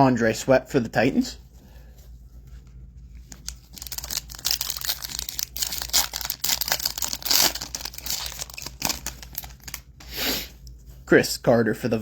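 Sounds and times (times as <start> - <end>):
card pack wrapper tearing and crinkling: 3.3 - 10.0.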